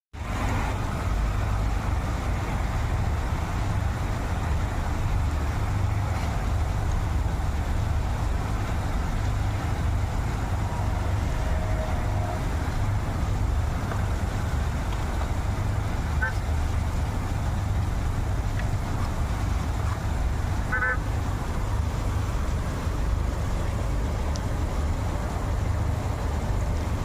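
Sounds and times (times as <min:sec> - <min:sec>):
road traffic in the rain: 0:00.1 - 0:27.0.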